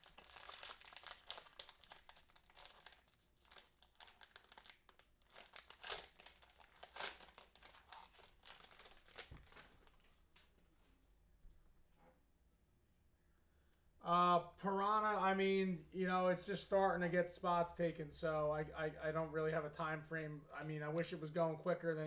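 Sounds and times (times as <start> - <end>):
cellophane wrappers crinkling: 0.0 - 10.2, 20.5 - 22.0.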